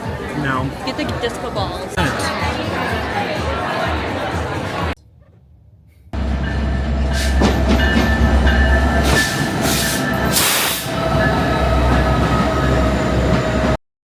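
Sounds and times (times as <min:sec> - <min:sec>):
train rumble: 0:06.2 - 0:13.8
hiss bursts: 0:09.0 - 0:11.0.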